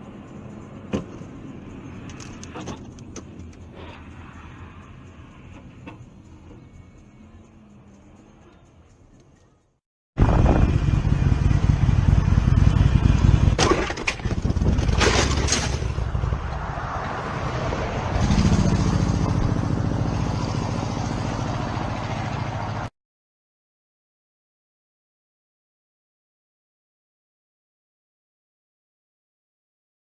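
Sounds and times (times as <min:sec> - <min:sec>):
vehicle engine and road noise: 0:00.0 - 0:22.9.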